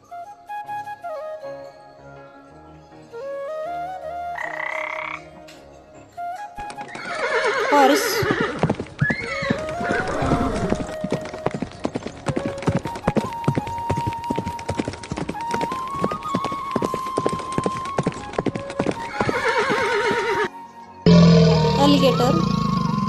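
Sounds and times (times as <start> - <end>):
background music with held notes: 0.0 - 23.0
horse hooves clip-clopping: 6.6 - 20.5
horse whinnying: 6.8 - 11.6, 15.6 - 20.5.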